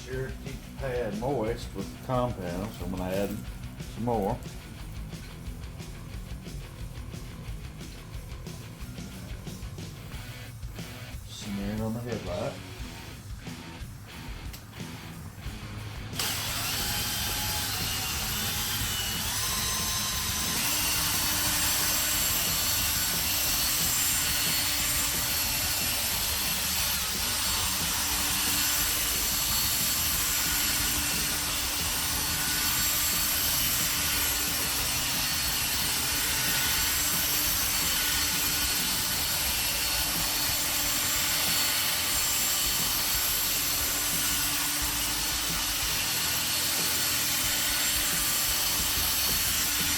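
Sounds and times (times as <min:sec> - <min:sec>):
electric drill polishing plastic: 0:16.2 - 0:49.9.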